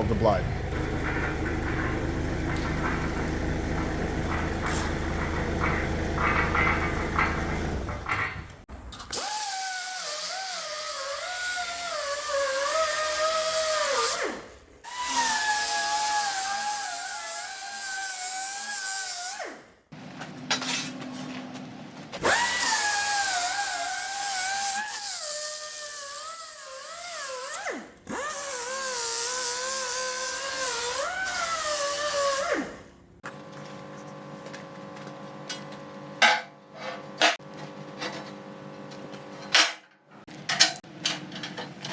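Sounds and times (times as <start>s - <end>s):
angle grinder grinding steel: 22.2s - 32.6s.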